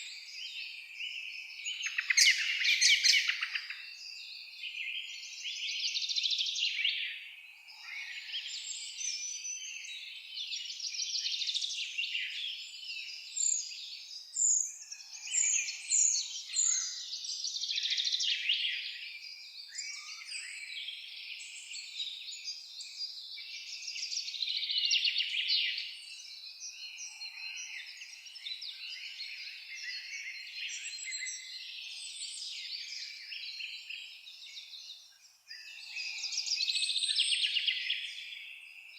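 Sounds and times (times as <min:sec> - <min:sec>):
birds singing and chirping: 0:00.0 - 0:38.9.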